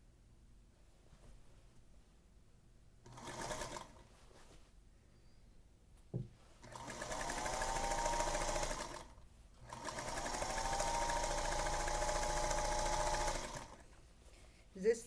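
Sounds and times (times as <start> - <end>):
sewing machine motor whine: 6.7 - 9.1, 9.7 - 13.8.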